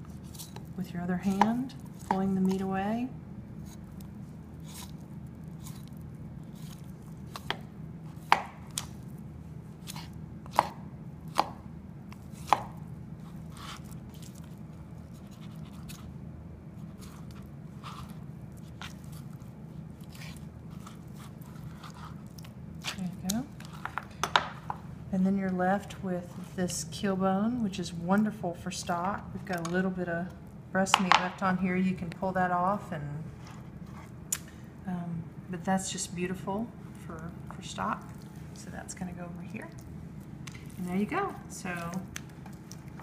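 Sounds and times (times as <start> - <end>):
knife scraping and cutting meat: 3.6 - 4.0, 4.6 - 8.9, 12.3 - 16.1, 16.8 - 24.0.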